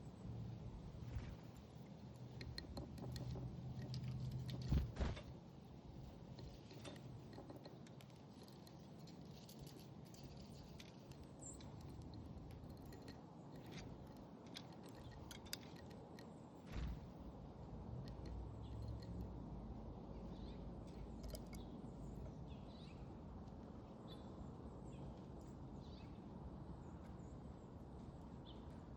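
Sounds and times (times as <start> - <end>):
low steady hum: 0.0 - 28.9
birds cracking seeds: 1.0 - 19.4.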